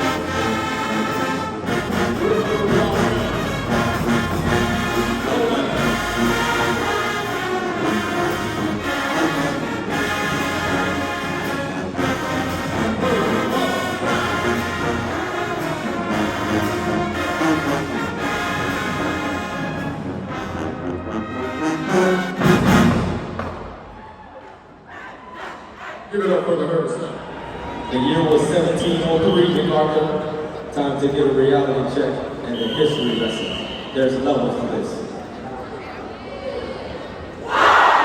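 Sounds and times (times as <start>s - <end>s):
trombone and trumpet chords: 0.0s - 23.4s
marching band playing brass: 0.0s - 23.8s.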